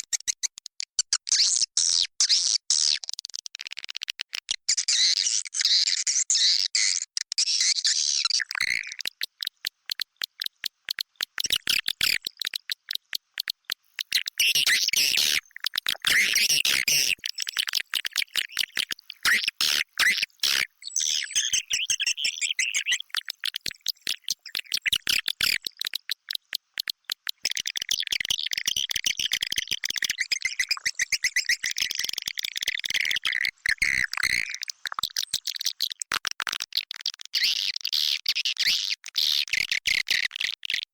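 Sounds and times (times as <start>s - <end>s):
swiftlets twittering: 8.5s - 28.4s
rapid sharp clicks: 8.6s - 20.7s, 23.0s - 29.4s.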